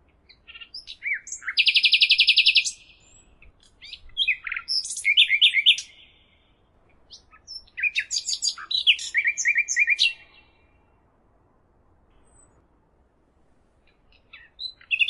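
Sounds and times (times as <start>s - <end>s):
songbird singing trills: 0.2s - 11.0s, 13.9s - 15.0s.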